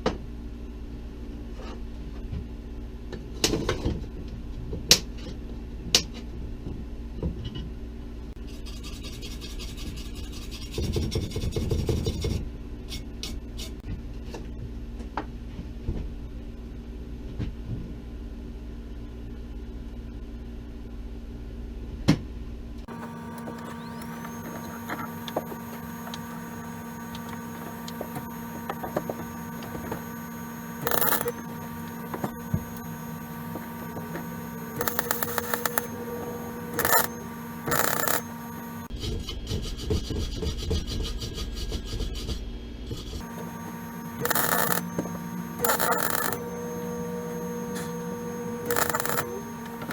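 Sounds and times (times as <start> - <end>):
steady hum: 22.9 - 38.9, 43.2 - 49.9
welding arc crackling: 22.9 - 38.9, 43.2 - 49.9.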